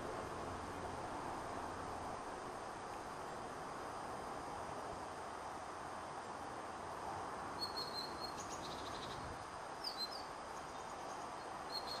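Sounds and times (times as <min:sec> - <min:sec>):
outdoor background hiss: 0:00.0 - 0:12.0
small birds chirping: 0:07.6 - 0:12.0.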